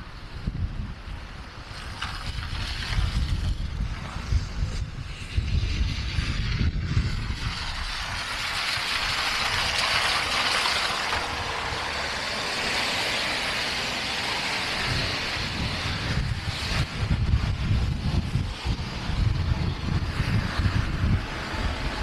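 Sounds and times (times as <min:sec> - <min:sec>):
wind rumble on microphone: 0:00.0 - 0:22.0
vehicle tyre hiss on snow: 0:01.6 - 0:22.0.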